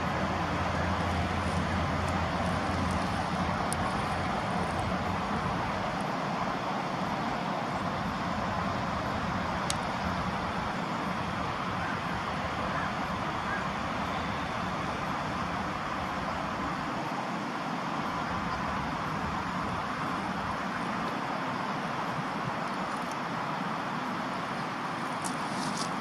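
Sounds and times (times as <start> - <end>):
road traffic hiss: 0.0 - 26.0.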